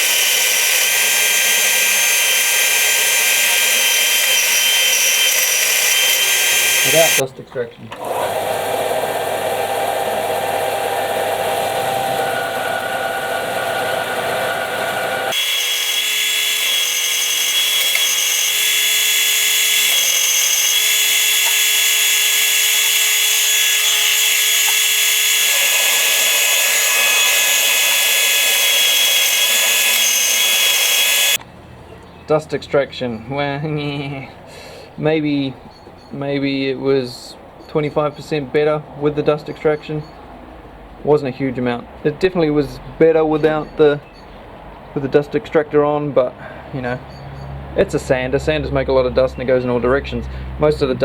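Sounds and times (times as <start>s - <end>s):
belt sander running: 0.0s - 7.2s, 8.0s - 31.4s
dust extractor whine: 0.0s - 7.2s, 8.0s - 31.4s.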